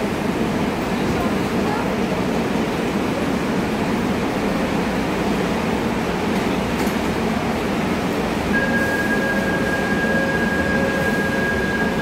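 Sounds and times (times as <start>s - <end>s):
train rumbling and hissing: 0.0s - 12.0s.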